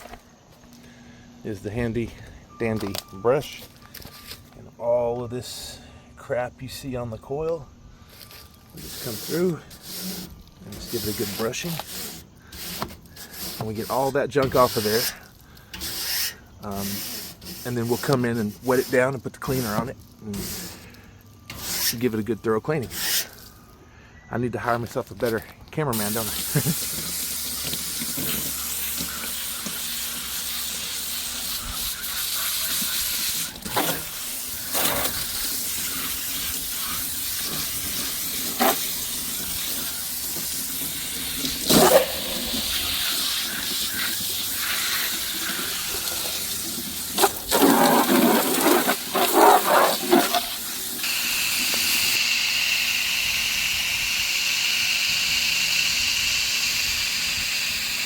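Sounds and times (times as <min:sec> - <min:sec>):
hose spray hissing on coil: 0:08.2 - 0:23.6, 0:25.2 - 0:52.9.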